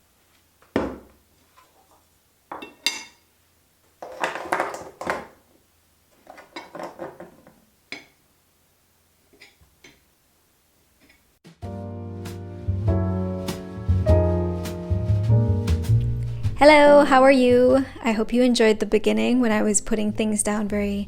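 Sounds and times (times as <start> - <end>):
objects set down on a surface: 4.0 - 5.4.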